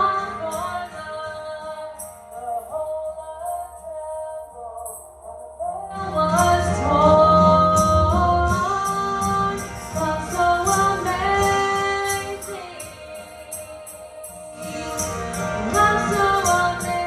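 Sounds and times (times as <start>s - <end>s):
band with bass: 4.6s - 17.0s
high percussion beat: 7.8s - 17.0s.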